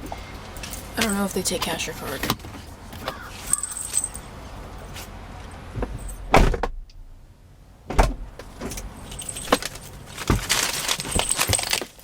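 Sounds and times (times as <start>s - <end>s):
low engine hum: 0.0s - 11.7s
knocks and rustles of handling: 8.0s - 12.0s.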